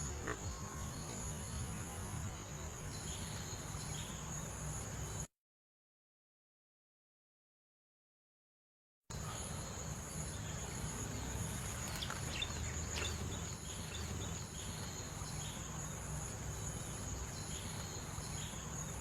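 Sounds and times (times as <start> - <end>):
pulsing insect trill: 9.2 - 19.0
bird chirps: 9.3 - 19.0.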